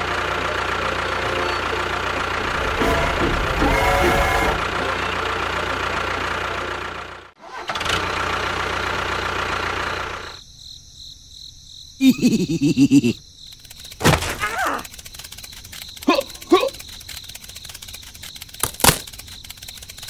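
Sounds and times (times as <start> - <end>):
motor running: 0.0 - 10.4, 14.6 - 20.0
wavering voice-like sounds: 12.0 - 13.2, 14.4 - 14.9, 16.0 - 16.8.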